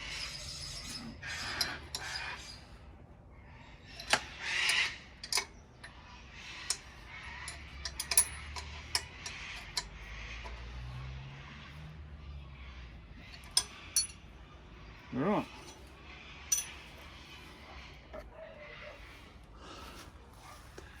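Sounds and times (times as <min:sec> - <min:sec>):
metallic clicks from hand tools: 0:04.0 - 0:05.5, 0:07.4 - 0:10.6.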